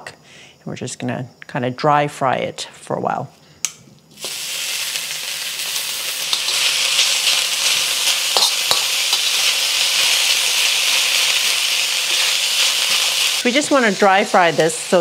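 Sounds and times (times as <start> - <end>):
vegetables sizzling in a wok: 4.1 - 15.0.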